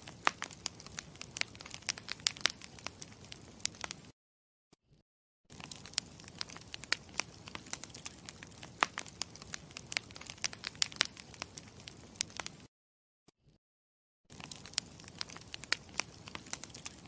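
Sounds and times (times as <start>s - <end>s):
campfire crackling: 0.0s - 4.1s, 5.5s - 12.7s, 14.3s - 17.0s.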